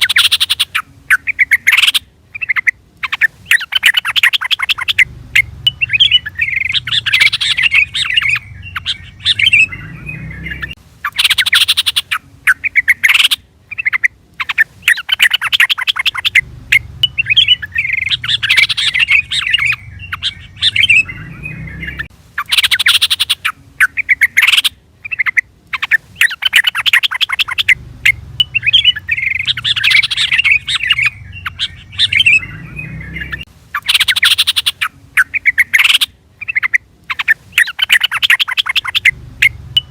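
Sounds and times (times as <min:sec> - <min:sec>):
bird chattering and rattling: 0:00.0 - 0:21.2, 0:22.0 - 0:32.5.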